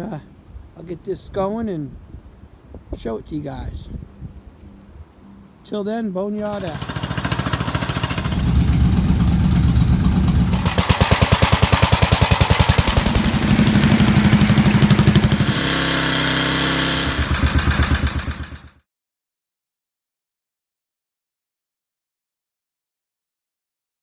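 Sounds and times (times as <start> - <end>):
garden tractor engine running: 6.4 - 18.8.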